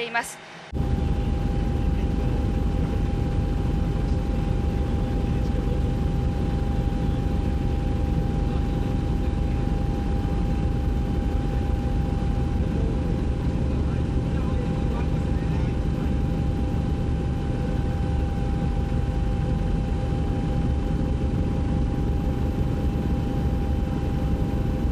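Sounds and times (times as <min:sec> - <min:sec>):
helicopter engine and rotor drone: 0:00.0 - 0:24.9
high whine: 0:00.0 - 0:24.9.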